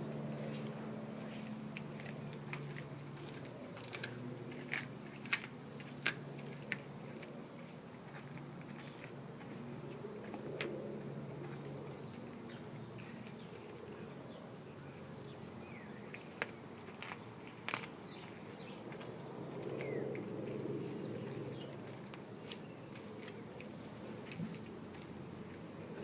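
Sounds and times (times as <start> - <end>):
steady low hum: 0.0 - 26.0
dog chewing bones: 0.6 - 10.8, 16.1 - 26.0.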